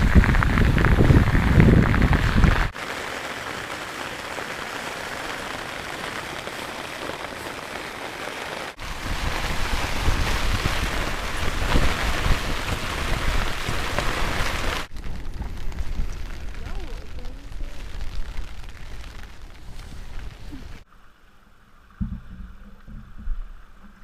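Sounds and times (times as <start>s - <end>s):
steady rain patter: 0.0s - 20.8s.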